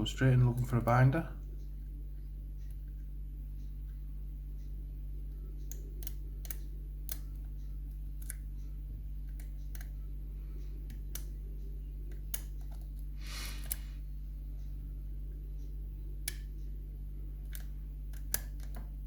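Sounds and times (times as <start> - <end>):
steady low hum: 0.0 - 19.0
lock pick clicking in a lock: 17.5 - 18.8.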